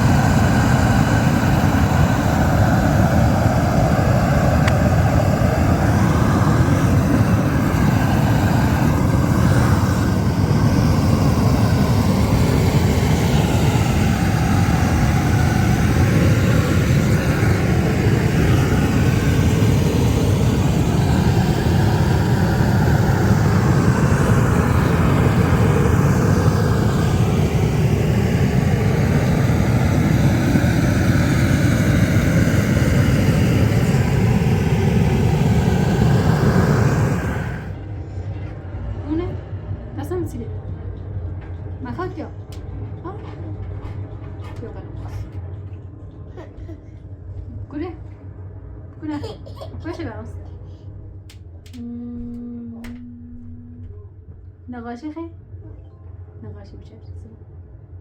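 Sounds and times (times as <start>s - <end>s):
gas torch burning: 0.0s - 38.3s.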